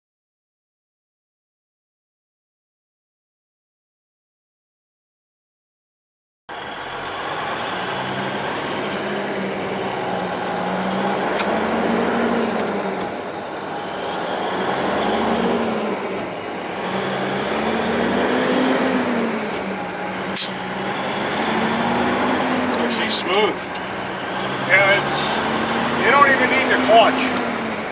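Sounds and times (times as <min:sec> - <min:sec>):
truck diesel engine shifting gears: 0:06.5 - 0:27.9.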